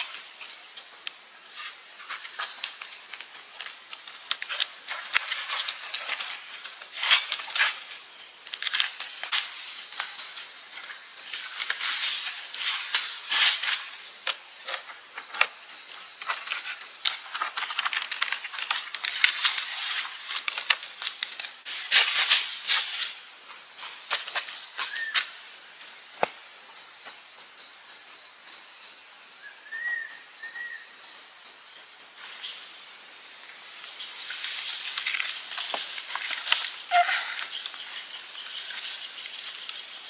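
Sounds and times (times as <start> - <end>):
dry leaves rustling and crackling: 1.5 - 14.1, 16.2 - 25.9, 33.2 - 40.0
bird chirping: 24.8 - 25.3, 29.4 - 31.0.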